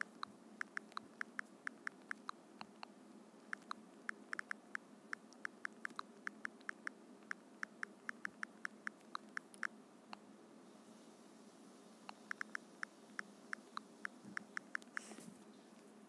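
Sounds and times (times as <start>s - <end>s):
phone keyboard clicks: 0.0s - 2.9s.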